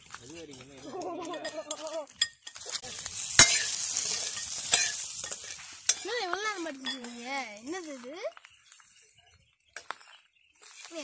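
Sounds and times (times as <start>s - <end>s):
onions sizzling in hot oil: 0.0s - 8.3s
spoon knocking against pan: 3.4s - 7.2s.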